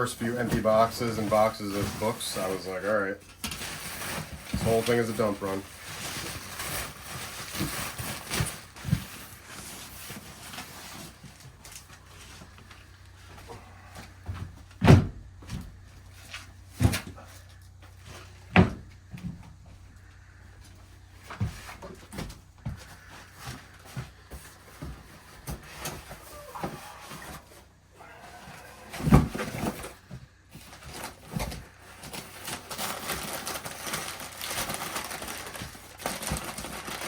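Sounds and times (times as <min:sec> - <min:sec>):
rustling: 0:00.0 - 0:14.6, 0:15.6 - 0:37.0
boxes knocking and thudding: 0:03.5 - 0:11.4, 0:13.3 - 0:19.8, 0:21.2 - 0:32.9.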